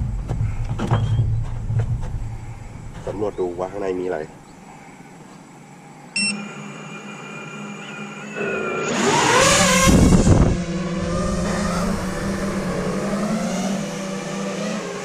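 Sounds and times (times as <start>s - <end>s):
quadcopter motors whining: 6.2s - 15.0s
loud rushing burst: 6.4s - 15.0s.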